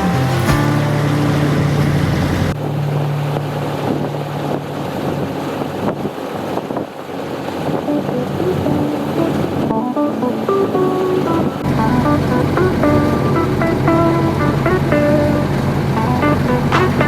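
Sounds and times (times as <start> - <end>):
boat engine drone: 0.0 - 17.0
water rushing along hull: 0.0 - 17.0
wind noise on microphone: 3.4 - 9.9.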